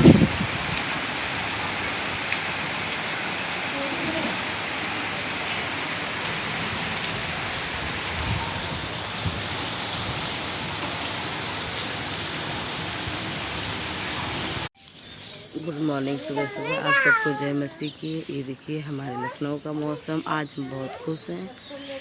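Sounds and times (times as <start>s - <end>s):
heavy rain falling: 0.0s - 14.7s.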